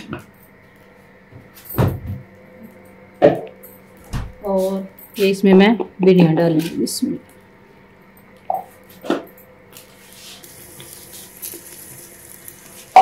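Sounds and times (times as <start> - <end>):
oil sizzling: 9.8 - 13.0.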